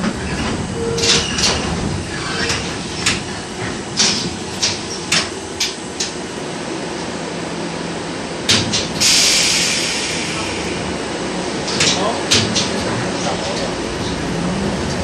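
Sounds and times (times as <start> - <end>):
tram running noise: 0.0 - 15.0
loud steady hiss: 9.0 - 10.9.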